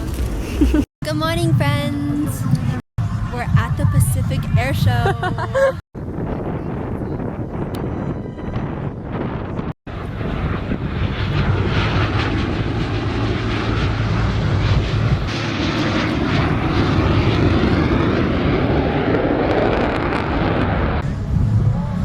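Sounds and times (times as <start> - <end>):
airplane flying past: 2.1 - 4.6, 8.6 - 22.0.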